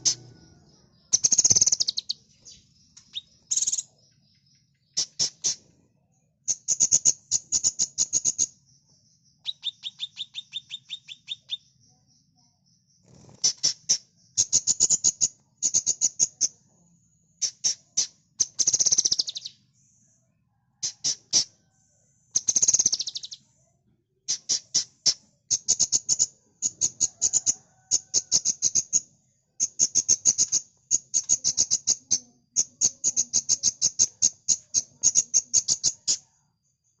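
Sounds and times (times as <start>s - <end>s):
softer lower bird notes: 0.0s - 5.7s
songbird singing sharp chips: 0.9s - 3.9s, 9.4s - 11.7s, 17.4s - 19.6s, 22.4s - 23.4s.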